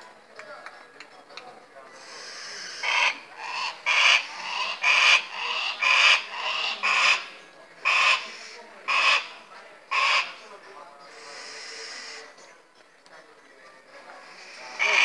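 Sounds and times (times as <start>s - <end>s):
bird giving harsh rasping calls: 2.0s - 10.4s, 11.1s - 12.4s, 14.2s - 15.0s.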